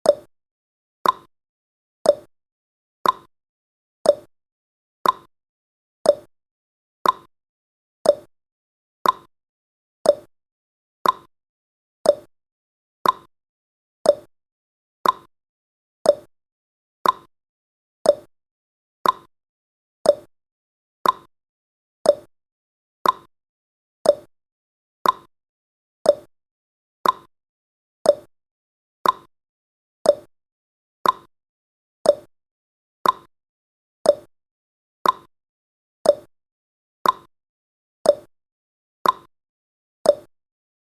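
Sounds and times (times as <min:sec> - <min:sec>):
timer clock ticking: 0:00.0 - 0:00.3, 0:01.0 - 0:01.3, 0:02.1 - 0:02.3, 0:03.0 - 0:03.3, 0:04.1 - 0:04.3, 0:05.0 - 0:05.3, 0:06.1 - 0:06.3, 0:07.0 - 0:07.3, 0:08.1 - 0:08.3, 0:09.0 - 0:09.3, 0:10.1 - 0:10.3, 0:11.0 - 0:11.3, 0:12.1 - 0:12.3, 0:13.0 - 0:13.3, 0:14.1 - 0:14.3, 0:15.0 - 0:15.3, 0:16.1 - 0:16.3, 0:17.0 - 0:17.3, 0:18.0 - 0:18.3, 0:19.0 - 0:19.3, 0:20.0 - 0:20.3, 0:21.0 - 0:21.3, 0:22.0 - 0:22.3, 0:23.0 - 0:23.3, 0:24.0 - 0:24.3, 0:25.0 - 0:25.3, 0:26.0 - 0:26.3, 0:27.0 - 0:27.3, 0:28.0 - 0:28.3, 0:29.0 - 0:29.3, 0:30.0 - 0:30.3, 0:31.0 - 0:31.3, 0:32.1 - 0:32.3, 0:33.0 - 0:33.3, 0:34.1 - 0:34.3, 0:35.0 - 0:35.3, 0:36.0 - 0:36.3, 0:37.0 - 0:37.3, 0:38.1 - 0:38.3, 0:39.0 - 0:39.3, 0:40.1 - 0:40.3.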